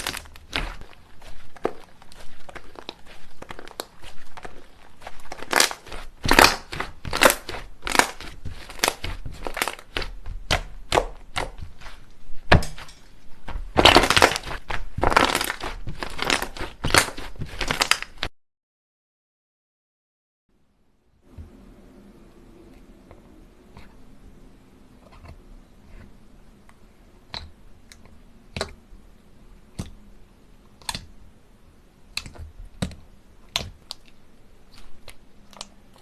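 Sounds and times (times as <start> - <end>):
slime crackling pops: 5.3 - 11.6, 13.7 - 18.3.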